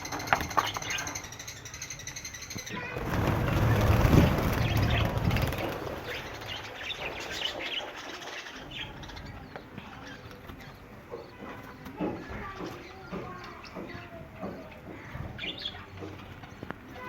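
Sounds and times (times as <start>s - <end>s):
loud low rush of noise: 3.0s - 6.7s.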